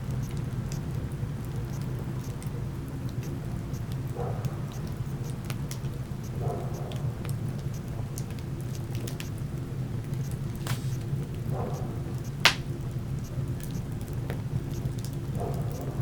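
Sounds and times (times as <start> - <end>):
wood fire crackling and popping: 12.4 - 15.4.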